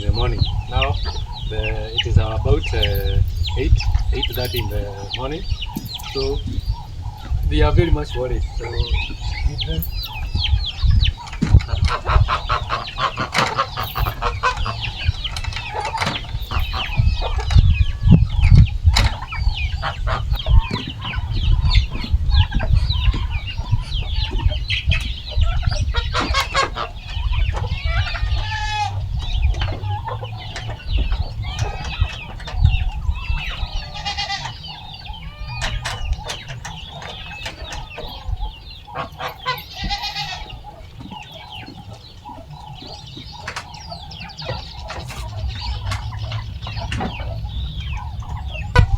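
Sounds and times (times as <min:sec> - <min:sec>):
chickens clucking and squawking: 0:00.0 - 0:48.9
low rumble: 0:44.6 - 0:48.9.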